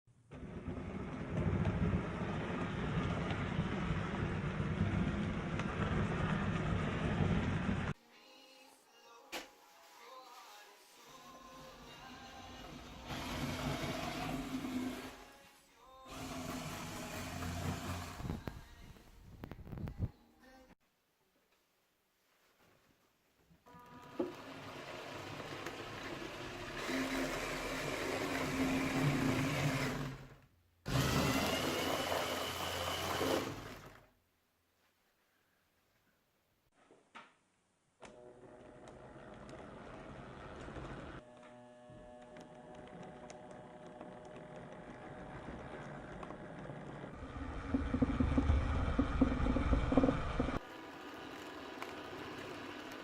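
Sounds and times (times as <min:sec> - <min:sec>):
small electric motor whirring: 0:41.2 - 0:53.0.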